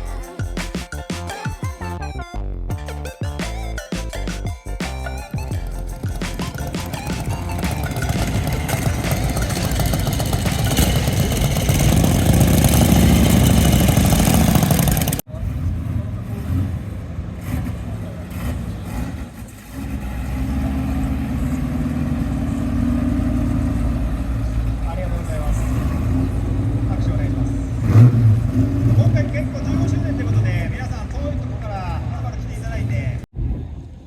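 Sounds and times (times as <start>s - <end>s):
muscle car engines idling: 0.0s - 15.2s, 16.1s - 31.6s
loud passage: 5.4s - 15.8s.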